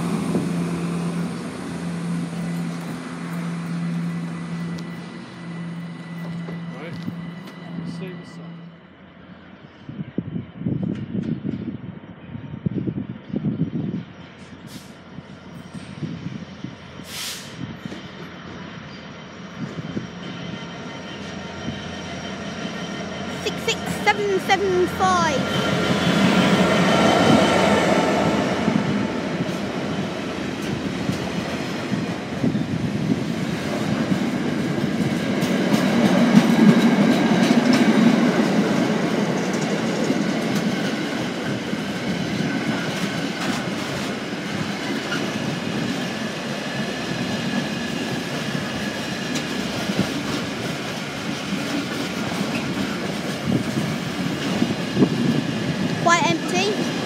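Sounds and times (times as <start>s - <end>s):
diesel locomotive passing: 0.0s - 57.0s
wheels rumbling on rail: 0.0s - 57.0s.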